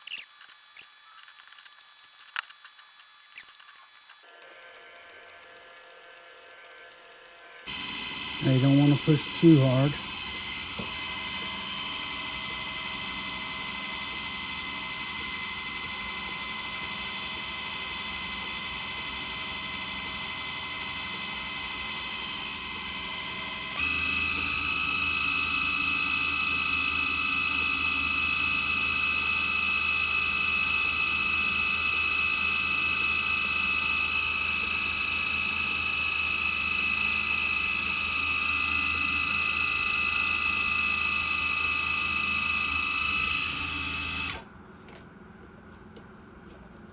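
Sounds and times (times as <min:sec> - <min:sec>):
drill press motor whining: 0:00.0 - 0:44.6.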